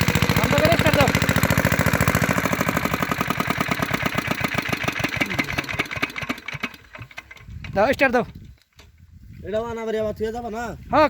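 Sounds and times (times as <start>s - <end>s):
diesel engine running down: 0.0s - 7.0s.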